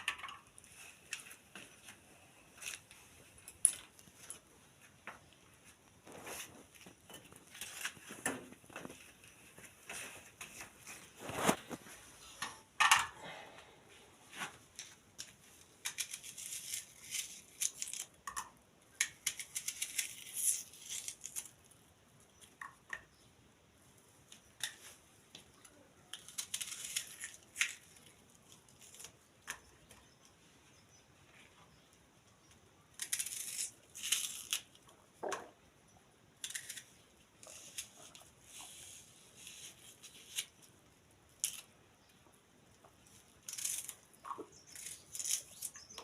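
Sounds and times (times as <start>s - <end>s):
objects being handled: 0.0s - 21.7s.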